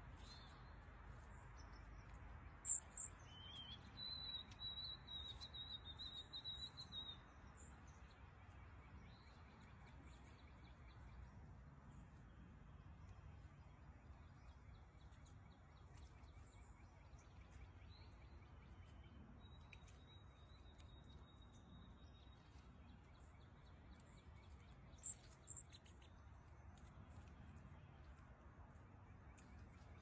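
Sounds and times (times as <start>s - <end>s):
bird chirps: 1.9s - 7.7s, 14.5s - 26.1s.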